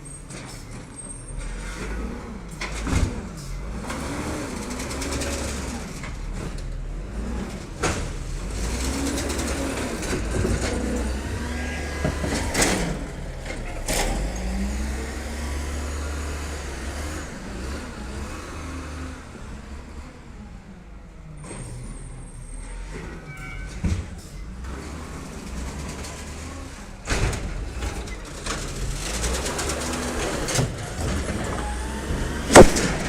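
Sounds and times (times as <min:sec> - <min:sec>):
garbage truck engine running: 0:00.0 - 0:23.2, 0:23.9 - 0:33.0
sharp bangs: 0:32.5 - 0:33.0.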